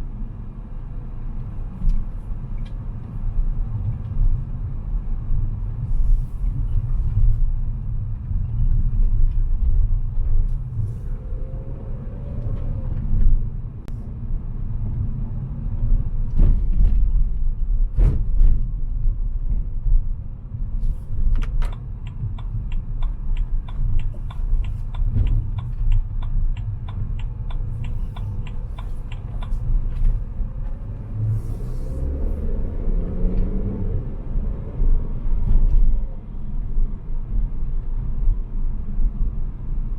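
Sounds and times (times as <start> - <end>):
car engine and tyre rumble: 0.0 - 39.9
even ticking: 21.7 - 29.6.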